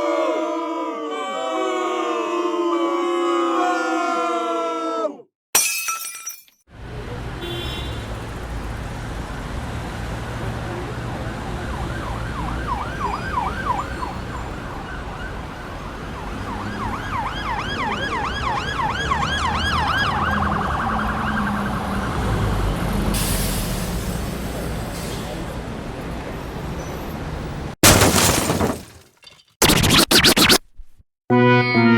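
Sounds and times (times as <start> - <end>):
road traffic rumble: 6.7 - 27.8
emergency siren yelping: 10.8 - 22.7.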